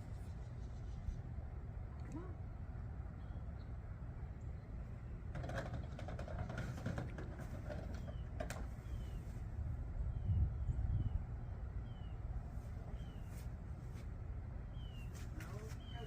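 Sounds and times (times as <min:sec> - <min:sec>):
low steady rumble: 0:00.0 - 0:16.0
small bird chirping: 0:14.7 - 0:16.0.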